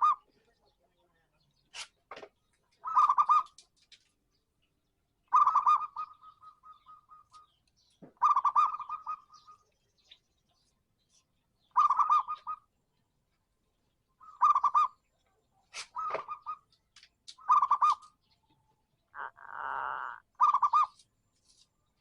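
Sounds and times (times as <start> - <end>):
dove cooing: 5.3 - 7.4, 8.2 - 9.6, 11.8 - 12.6, 15.8 - 16.6, 17.4 - 18.1, 19.1 - 21.0.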